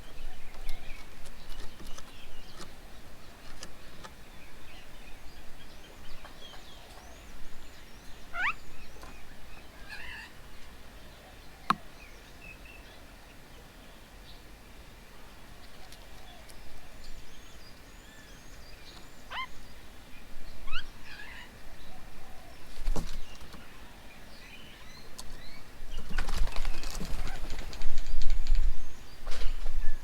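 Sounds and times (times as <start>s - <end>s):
birds chirping and whistling: 6.2s - 10.3s, 18.2s - 19.6s, 20.6s - 21.5s
rustling noise: 26.0s - 30.0s.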